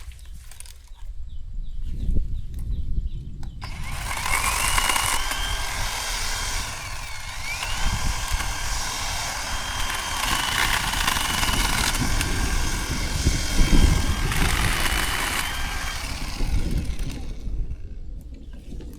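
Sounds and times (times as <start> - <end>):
electric chainsaw whine: 3.6 - 18.1.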